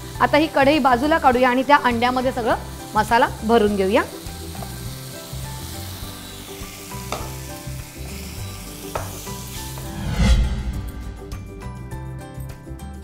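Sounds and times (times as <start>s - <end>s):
masala sizzling: 0.0s - 12.0s
loud low whoosh: 9.6s - 12.2s.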